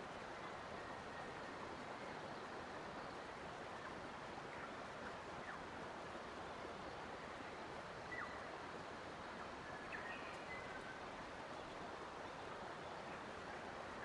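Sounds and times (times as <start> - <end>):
faint bird chirps: 6.7 - 8.6, 9.2 - 14.0.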